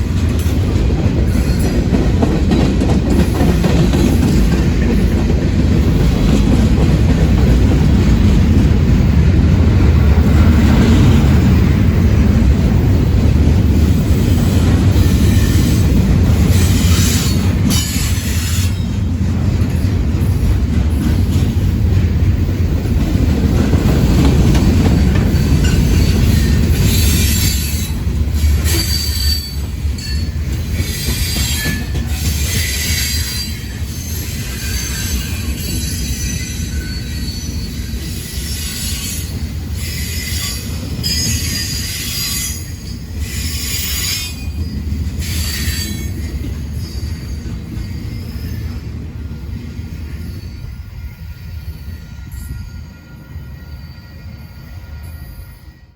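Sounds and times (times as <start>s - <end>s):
train rumbling on rails: 0.0s - 55.9s
high-pitched wheel squeal: 28.6s - 48.9s.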